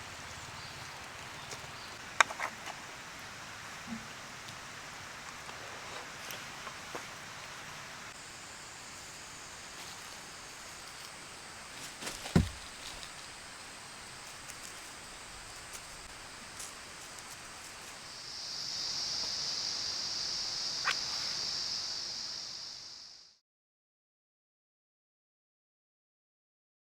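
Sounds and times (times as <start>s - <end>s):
soft hiss: 0.0s - 23.4s
sharp thump: 12.1s - 12.8s.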